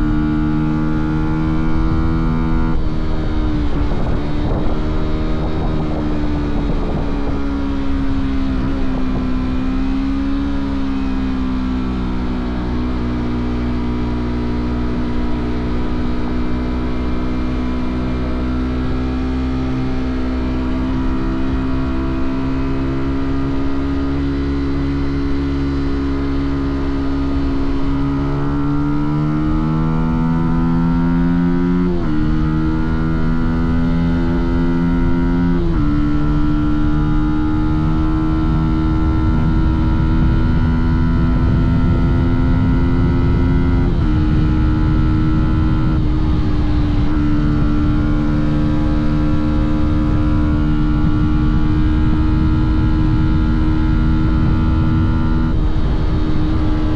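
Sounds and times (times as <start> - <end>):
motorcycle engine cruising: 0.0 - 56.9.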